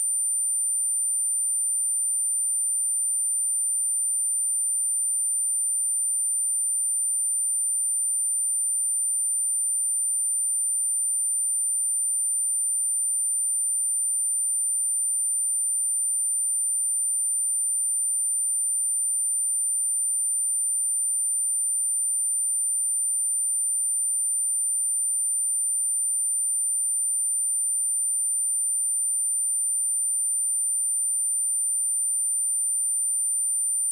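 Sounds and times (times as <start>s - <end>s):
high-pitched sine test tone: 10.9s - 33.9s.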